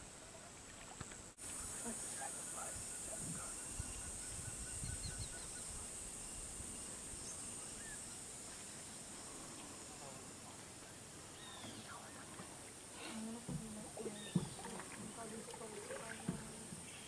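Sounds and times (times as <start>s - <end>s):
high-pitched insect chorus: 1.4s - 13.1s.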